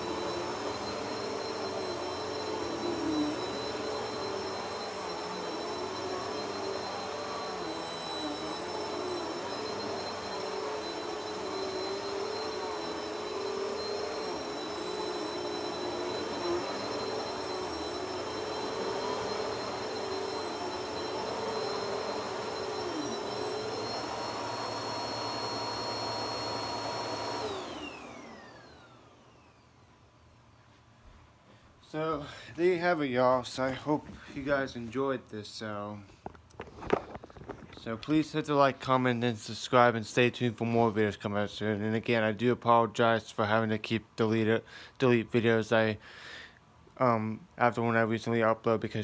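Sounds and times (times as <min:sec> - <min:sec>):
vacuum motor winding down: 0:00.0 - 0:29.6
vacuum cleaner whining: 0:00.0 - 0:30.8, 0:31.8 - 0:42.4.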